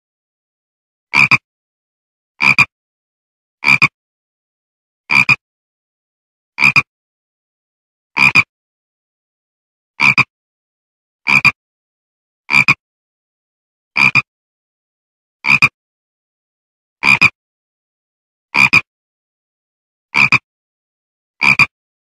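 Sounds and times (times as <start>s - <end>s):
frog croaking: 1.1s - 1.5s, 2.4s - 2.7s, 3.6s - 4.0s, 5.1s - 5.4s, 6.6s - 6.9s, 8.2s - 8.5s, 10.0s - 10.3s, 11.2s - 11.6s, 12.5s - 12.8s, 14.0s - 14.3s, 15.4s - 15.8s, 17.0s - 17.4s, 18.5s - 18.9s, 20.1s - 20.5s, 21.4s - 21.8s.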